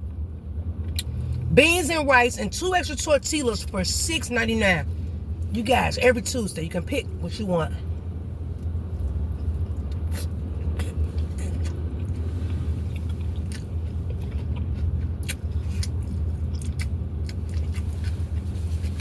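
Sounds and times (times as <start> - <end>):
steady low hum: 0.0 - 19.0
person chewing food: 8.5 - 19.0.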